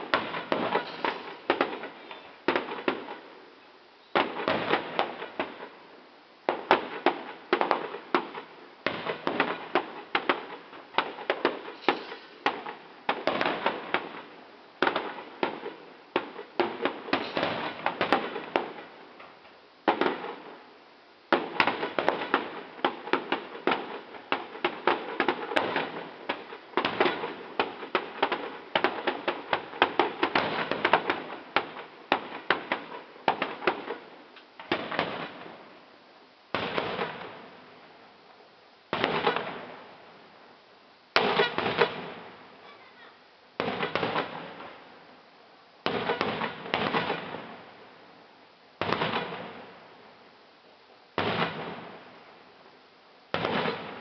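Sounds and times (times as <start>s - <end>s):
firework shells bursting: 0.0s - 3.2s, 6.5s - 14.2s, 14.8s - 20.5s, 21.3s - 35.5s, 41.1s - 42.5s
firework crackling: 0.0s - 45.2s, 45.8s - 48.1s, 48.8s - 52.7s, 53.3s - 54.0s.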